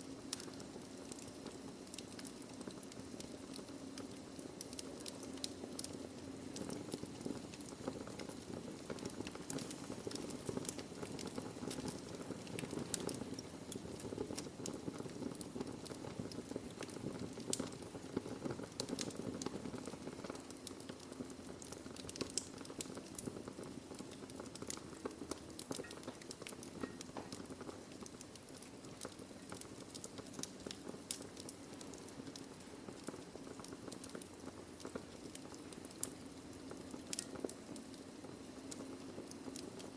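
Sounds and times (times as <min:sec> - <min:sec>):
wood fire hissing and crackling: 0:00.0 - 0:39.9.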